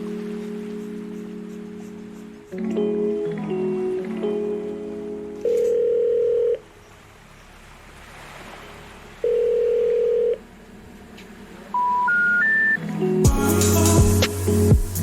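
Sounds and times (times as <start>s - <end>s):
telephone ringback beeps: 5.4s - 6.6s, 9.2s - 10.4s, 11.8s - 12.8s
rising three-tone telephone signal: 5.5s - 6.6s, 9.2s - 10.4s, 11.8s - 12.8s.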